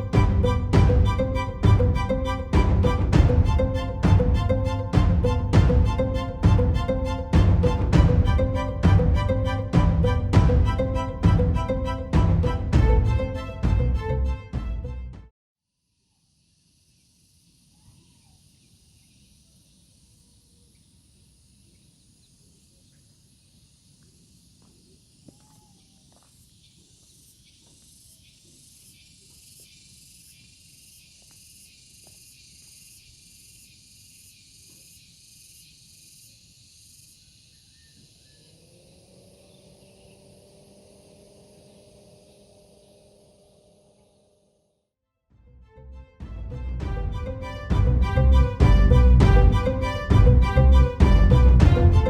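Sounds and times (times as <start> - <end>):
low rumble: 0.0 - 14.9, 46.5 - 52.0
insect chorus buzzing: 15.9 - 44.8
insect calling in pulses: 16.0 - 44.6.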